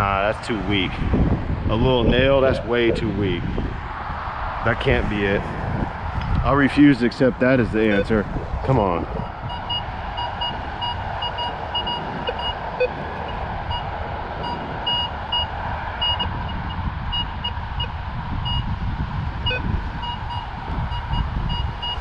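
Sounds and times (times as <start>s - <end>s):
wind buffeting microphone: 0.0s - 22.0s
metal detector high beeps: 10.8s - 12.9s.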